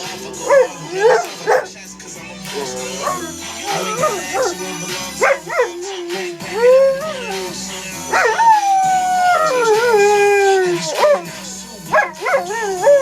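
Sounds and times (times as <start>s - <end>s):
dog howling: 0.4s - 1.7s, 2.5s - 13.0s
dog yelping howls: 3.0s - 4.6s, 5.3s - 7.5s, 8.1s - 11.3s, 11.9s - 13.0s.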